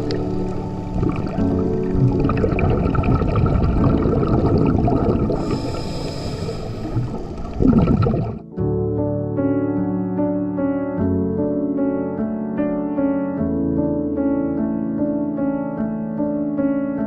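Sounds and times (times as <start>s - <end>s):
gurgling rush of exhaled bubbles: 0.0s - 8.5s
soft background music: 0.0s - 17.0s
diver breathing through regulator: 5.0s - 7.6s
hiss: 5.4s - 7.5s.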